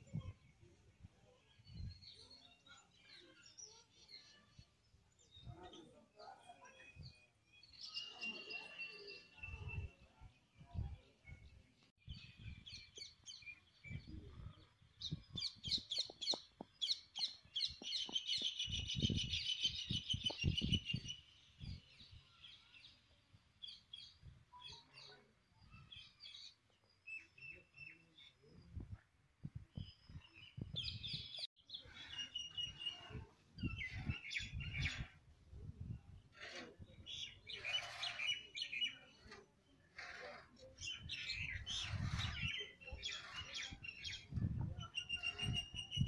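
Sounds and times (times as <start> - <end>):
birds chirping and calling: 12.1 - 21.8, 29.8 - 35.2, 35.8 - 46.0.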